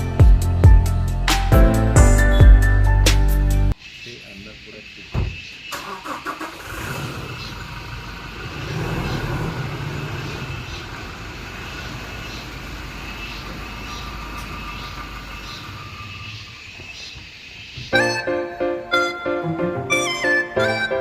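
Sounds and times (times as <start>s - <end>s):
vehicle engine and road rumble: 5.3s - 17.9s.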